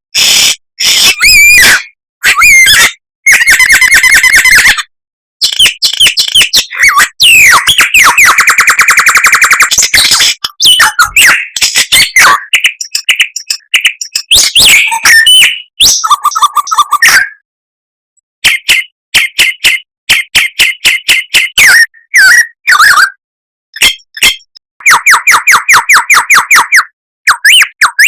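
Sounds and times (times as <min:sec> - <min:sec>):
songbird singing with trills: 0:05.4 - 0:08.2, 0:09.6 - 0:17.2, 0:18.4 - 0:22.8.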